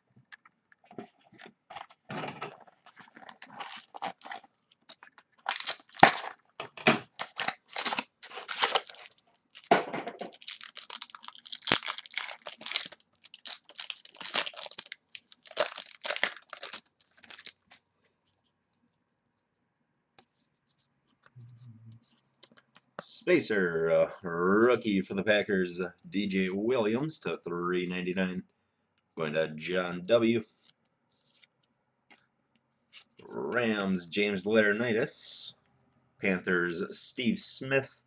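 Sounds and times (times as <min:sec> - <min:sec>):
wrapper tearing and crinkling: 0:02.6 - 0:06.4, 0:07.2 - 0:17.7.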